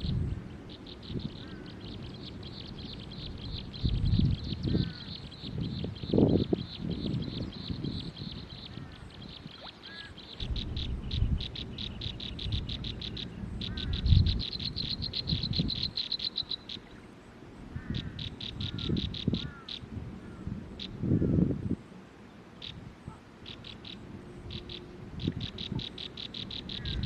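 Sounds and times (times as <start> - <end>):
fast high pulsed animal calls: 23.4 - 27.0.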